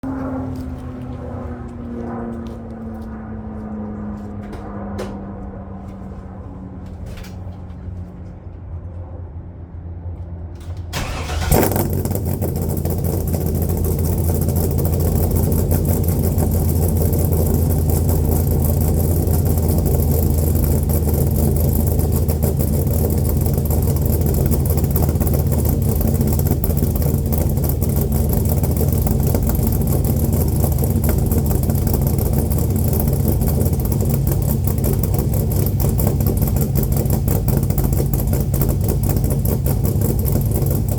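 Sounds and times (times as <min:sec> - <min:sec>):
engine cranking: 0:10.6 - 0:40.9
engine rumbling fast idle: 0:10.9 - 0:40.9.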